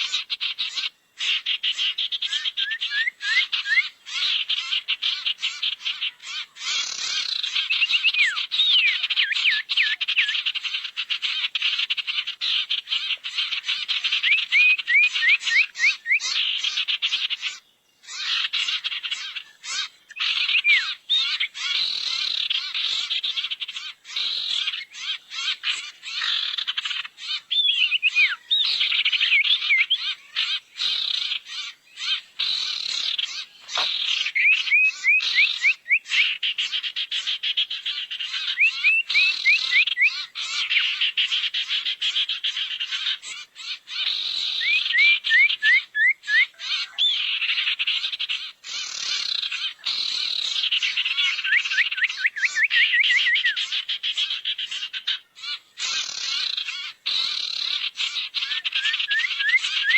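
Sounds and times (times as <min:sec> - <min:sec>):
bird chattering: 0:00.0 - 0:59.9
bird whistles sweeping: 0:58.8 - 0:59.9.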